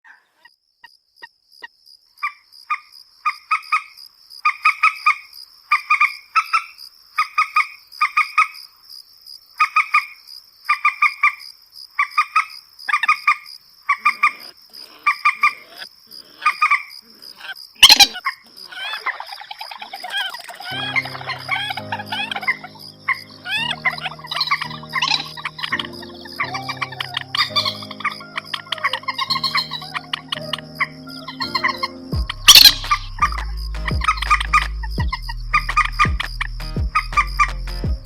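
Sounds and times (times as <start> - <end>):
chattering bird calls: 13.9 - 37.5
waterbird clucking calls: 16.4 - 33.0.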